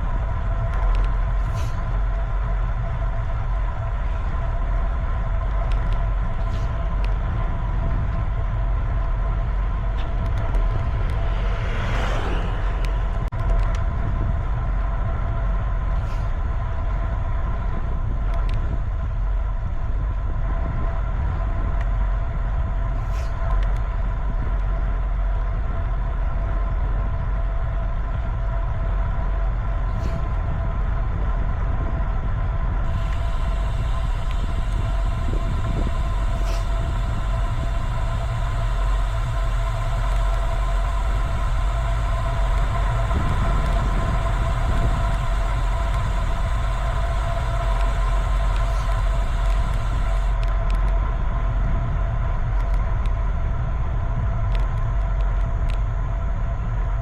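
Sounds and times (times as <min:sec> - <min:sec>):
steady multi-tone hum: 0:00.0 - 0:57.0
wind and road noise: 0:00.0 - 0:57.0
faint ticks: 0:32.9 - 0:51.0.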